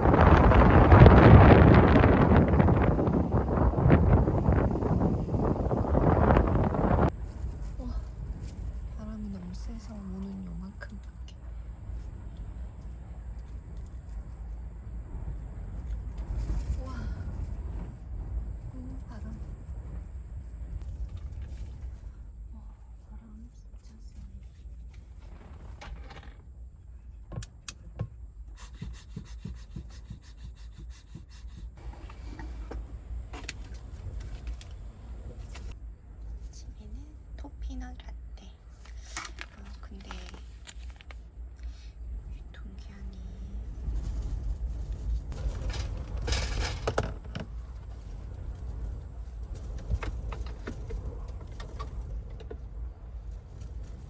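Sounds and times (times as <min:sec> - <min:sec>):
strong wind rumbling against car: 0:00.0 - 0:54.0
rustling and clicks of handling: 0:38.7 - 0:41.8.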